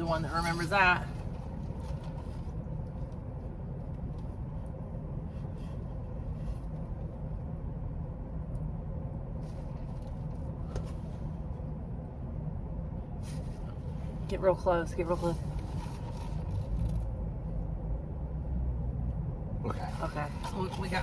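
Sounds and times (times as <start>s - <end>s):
car engine humming: 0.0s - 21.0s
faint clicks and rustles: 1.0s - 7.3s, 15.0s - 17.2s.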